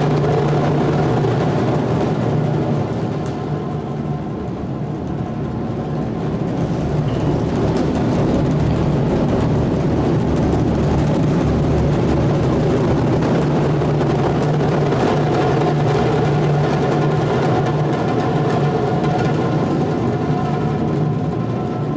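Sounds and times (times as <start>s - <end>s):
taiko drums playing rapidly: 6.0s - 20.5s.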